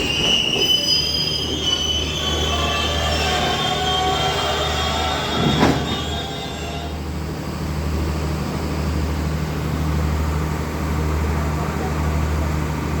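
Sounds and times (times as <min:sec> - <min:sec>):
high wheel squeal: 0:00.0 - 0:09.1
diesel locomotive engine humming: 0:00.0 - 0:13.0.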